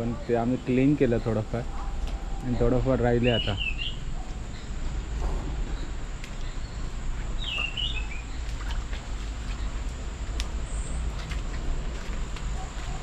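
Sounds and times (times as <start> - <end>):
bird chirping: 0.2 - 4.7, 5.7 - 8.5.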